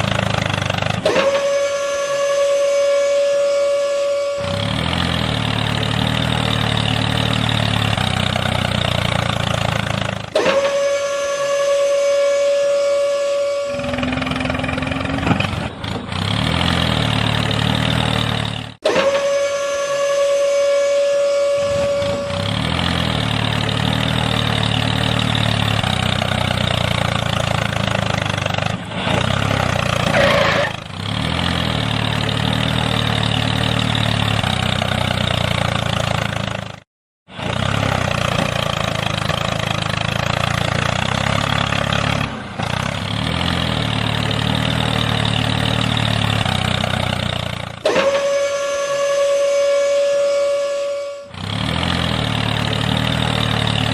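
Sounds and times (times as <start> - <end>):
engine running with low throb: 0.0 - 53.9
steady high tone: 19.6 - 22.6.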